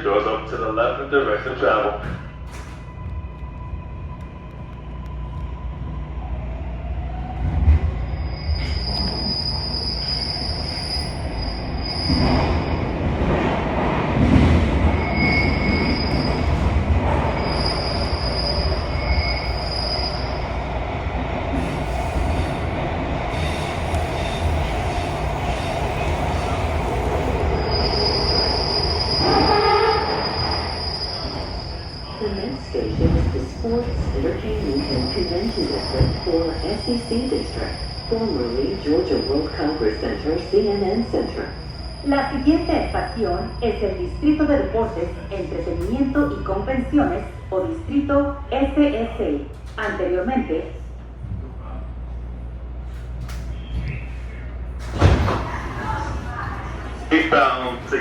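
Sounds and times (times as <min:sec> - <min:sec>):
railcar wheels rumbling on track: 0:00.0 - 0:58.0
high-pitched wheel squeal: 0:08.0 - 0:12.8, 0:17.4 - 0:20.4, 0:27.6 - 0:32.2.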